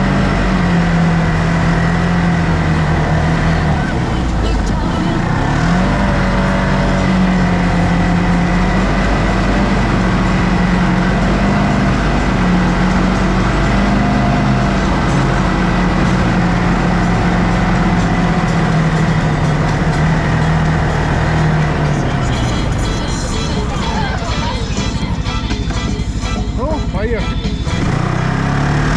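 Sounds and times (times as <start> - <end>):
rumble over rough ground: 0.0 - 28.9
vehicle engine hum: 0.0 - 28.9.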